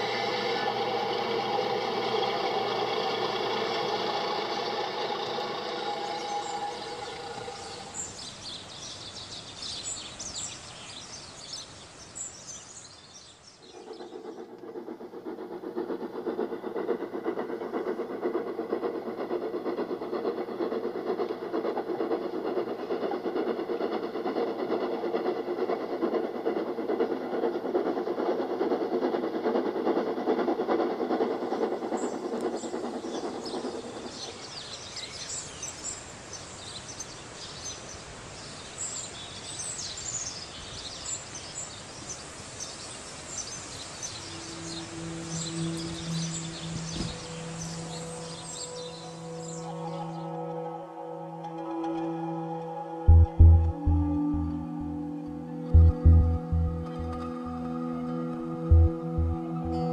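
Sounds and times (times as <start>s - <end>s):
steady held tones: 0.0s - 8.2s, 44.2s - 59.9s
high hissing: 0.0s - 8.4s, 43.5s - 50.3s
train running on rails: 0.0s - 10.6s, 13.6s - 59.9s.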